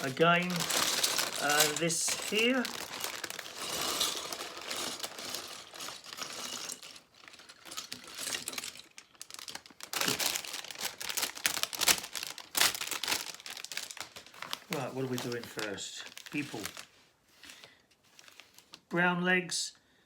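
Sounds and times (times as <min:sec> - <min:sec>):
plastic pieces clicking: 0:00.0 - 0:14.2
plastic bags crinkling: 0:00.0 - 0:18.8.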